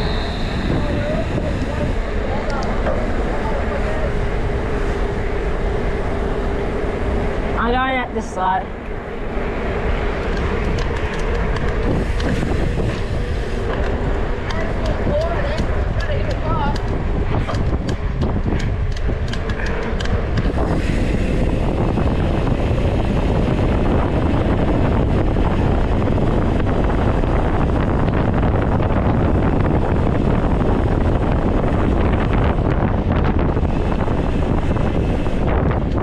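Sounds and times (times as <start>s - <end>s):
bike tyre and trail rumble: 0.0s - 36.0s
wind buffeting microphone: 0.0s - 36.0s.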